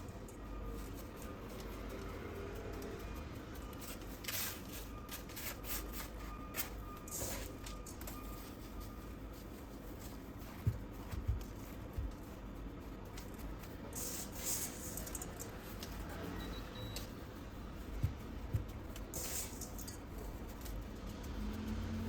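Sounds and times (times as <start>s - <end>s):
soft low thumps: 10.2s - 13.6s, 17.6s - 19.0s
rustling scrapes: 13.2s - 21.3s.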